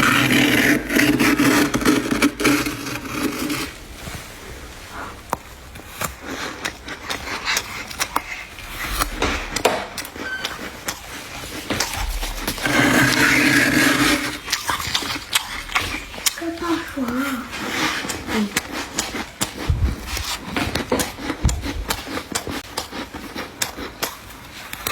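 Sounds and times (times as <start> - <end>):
frost being scraped: 0.0 - 23.0
frost crunching: 0.0 - 24.1.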